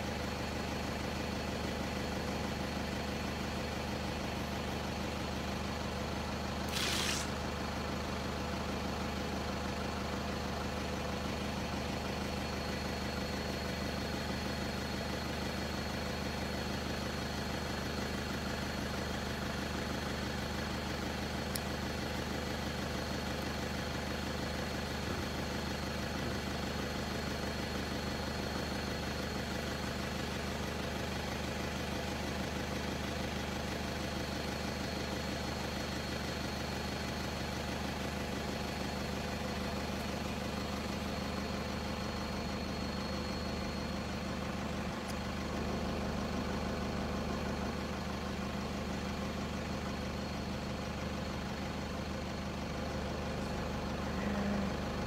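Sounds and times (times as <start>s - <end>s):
vehicle engine idling: 0.0s - 55.0s
faint high whine: 39.5s - 45.7s.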